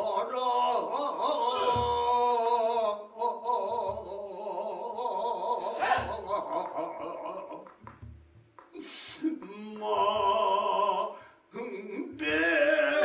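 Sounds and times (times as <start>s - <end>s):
man singing a long wavering vowel: 0.0s - 7.6s, 9.2s - 13.0s
low barrel drum strikes: 5.8s - 6.4s.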